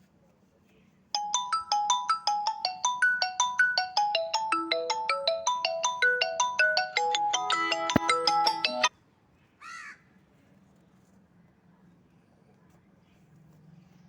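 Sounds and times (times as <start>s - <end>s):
phone ringtone marimba melody: 1.2s - 8.9s.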